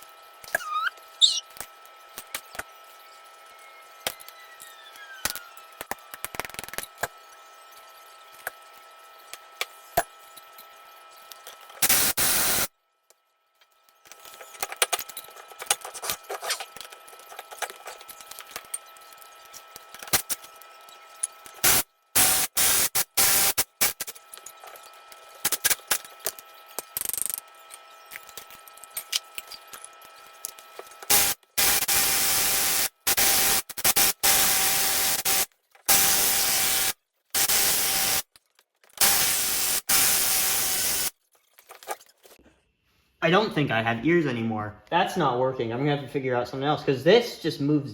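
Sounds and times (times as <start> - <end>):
impact wrench bursts: 11.8 - 12.7, 31.1 - 38.2, 39.0 - 41.1.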